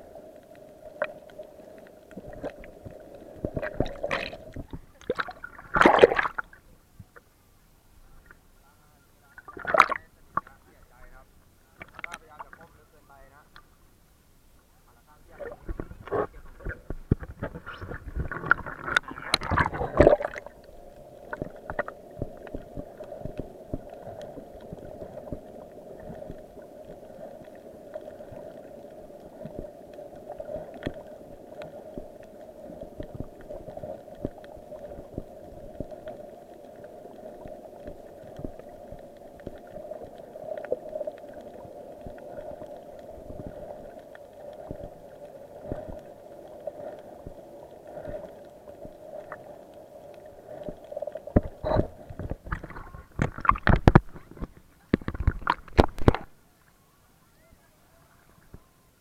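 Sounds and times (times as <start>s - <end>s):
underwater splashing and bubbling: 0.0s - 7.1s, 9.3s - 11.1s, 11.8s - 12.8s, 15.2s - 56.4s
crackling clicks: 0.0s - 7.3s, 11.7s - 12.7s, 15.4s - 56.4s
muffled underwater drone: 14.7s - 59.0s.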